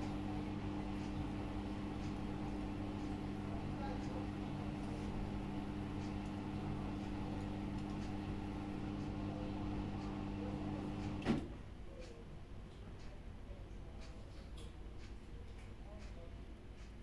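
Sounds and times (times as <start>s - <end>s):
washing machine humming: 0.0s - 11.6s.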